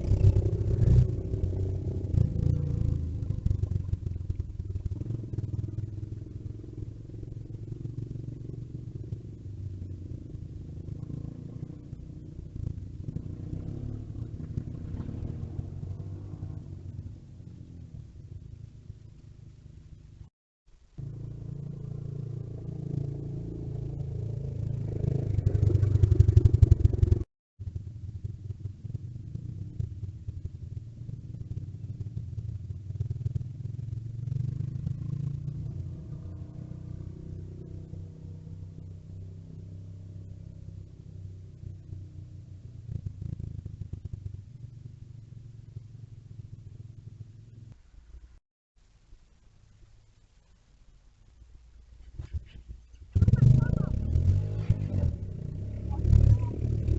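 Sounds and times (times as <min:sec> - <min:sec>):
off-road vehicle engines running: 0:00.0 - 0:20.2, 0:21.0 - 0:48.4, 0:52.0 - 0:56.9.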